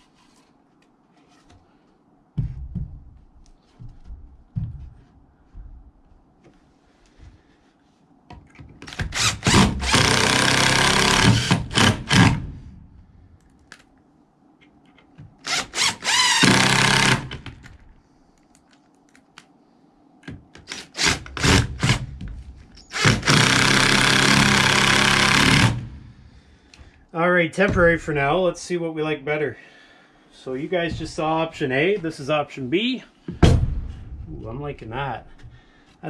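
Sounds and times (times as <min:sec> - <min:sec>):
power drill driving screws into wood: 0:08.8 - 0:12.6, 0:15.4 - 0:17.6, 0:20.6 - 0:22.1, 0:22.8 - 0:26.0.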